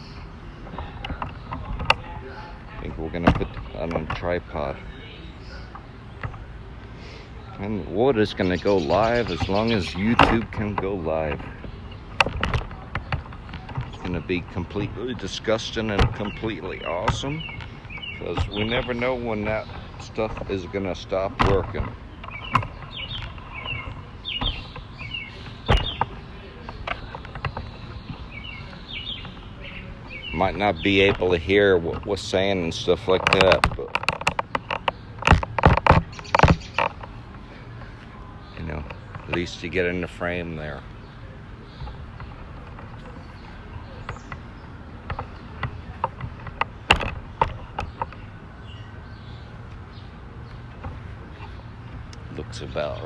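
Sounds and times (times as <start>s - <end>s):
low outdoor background: 0.0s - 53.0s
sharp clicks and knocks: 0.6s - 4.8s, 7.5s - 53.0s
small bird chirping: 7.3s - 53.0s.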